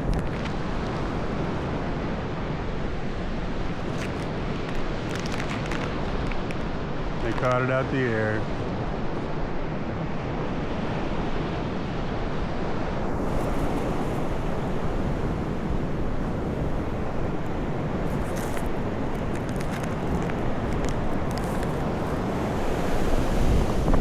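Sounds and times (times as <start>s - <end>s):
faint high crackles: 0.0s - 1.7s, 3.6s - 8.5s, 17.4s - 23.1s
ocean surf: 0.0s - 24.0s
wind buffeting microphone: 0.0s - 24.0s.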